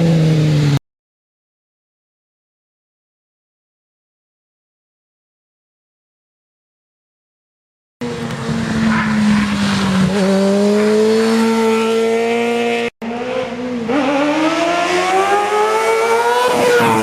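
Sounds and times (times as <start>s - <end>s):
motorcycle engine at high revs: 0.0s - 0.8s, 8.0s - 17.0s.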